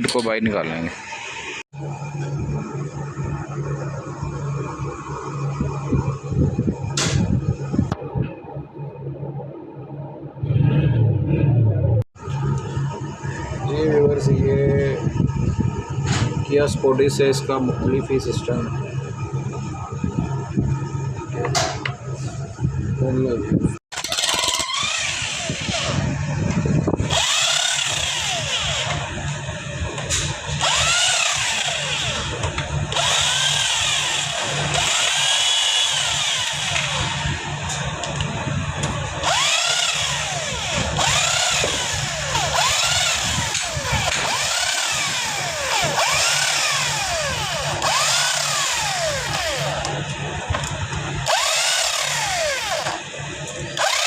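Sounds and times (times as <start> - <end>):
steady low hum: 0.0 - 23.8, 24.4 - 54.0
power drill spinning: 23.9 - 26.4, 27.0 - 29.5, 30.4 - 38.2, 38.8 - 54.0.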